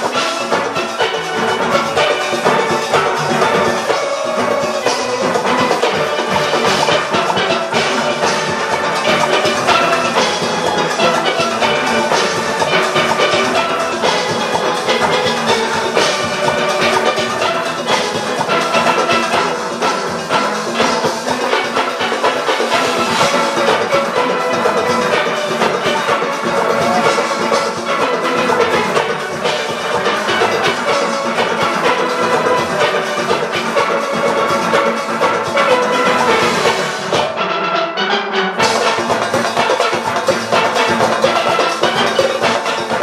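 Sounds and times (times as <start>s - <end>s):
drum kit and percussion: 0.0s - 43.0s
steelpans playing melody: 0.0s - 43.0s.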